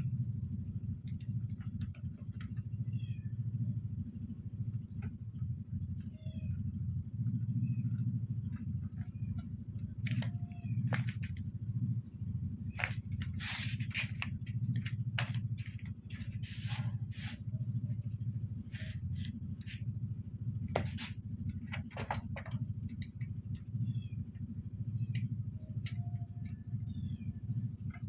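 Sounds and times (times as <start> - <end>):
low hum: 0.0 - 28.0
clicks and scrapes: 12.7 - 17.4, 20.8 - 21.1.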